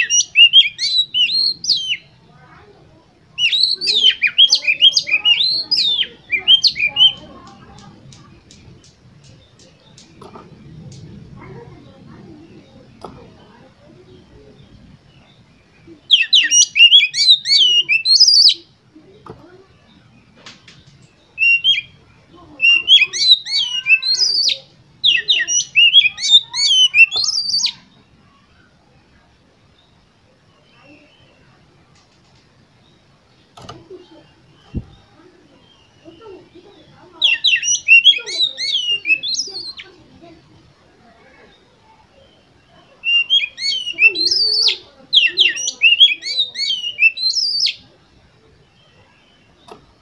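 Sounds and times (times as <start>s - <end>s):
bird singing whistled notes: 0.0s - 2.2s, 3.3s - 11.1s, 14.1s - 18.7s, 19.8s - 28.8s, 34.4s - 40.0s, 41.4s - 48.0s.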